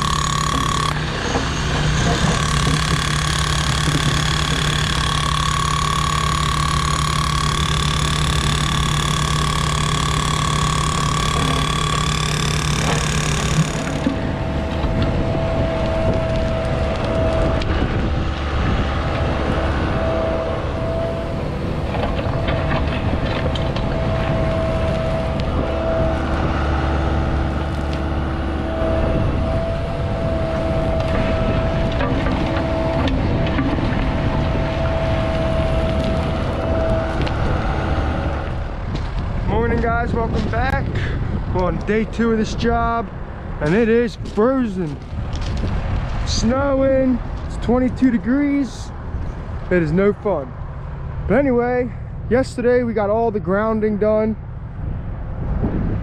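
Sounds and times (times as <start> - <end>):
machine with low whine: 0.0 - 40.7
construction machinery engines whining: 0.0 - 56.0.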